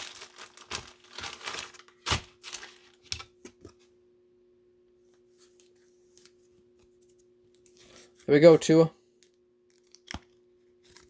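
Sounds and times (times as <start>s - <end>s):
cards and plastic packaging handled: 0.0s - 3.9s, 9.6s - 11.0s.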